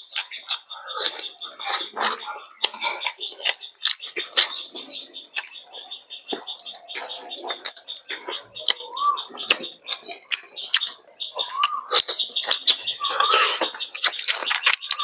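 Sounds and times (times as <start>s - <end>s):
birds chirping: 0.0s - 15.0s
wet chewing and lip-smacking: 0.0s - 15.0s.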